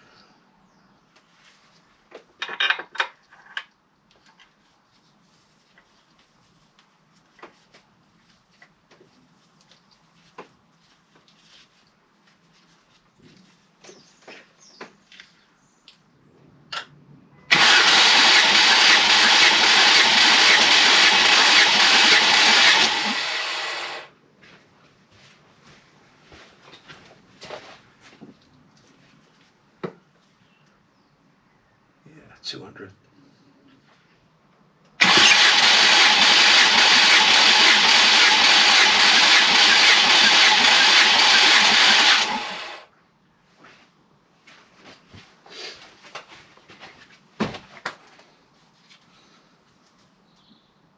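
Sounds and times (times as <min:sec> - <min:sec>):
engine cranking on starter motor: 0:17.5 - 0:24.1, 0:35.0 - 0:42.9.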